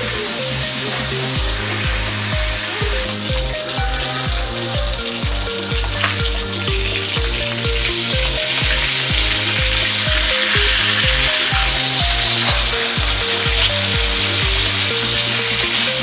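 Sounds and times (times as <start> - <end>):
background music with a beat: 0.0 - 16.0
food sizzling in hot oil: 0.0 - 16.0.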